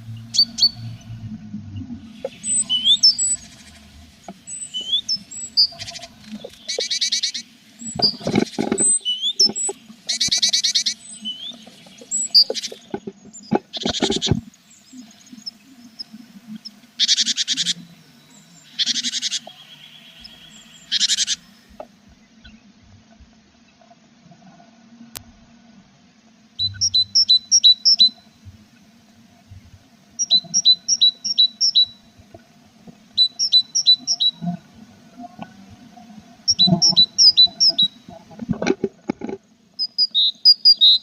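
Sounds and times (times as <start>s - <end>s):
nestlings giving buzzy calls: 0.0s - 1.2s, 2.1s - 18.0s, 18.6s - 21.8s, 26.6s - 28.3s, 30.2s - 32.1s, 33.1s - 34.6s, 36.5s - 38.1s
thin high chirps: 2.2s - 3.7s, 39.8s - 41.0s
knocks and rustles: 8.0s - 9.8s, 12.5s - 14.5s, 38.4s - 39.4s.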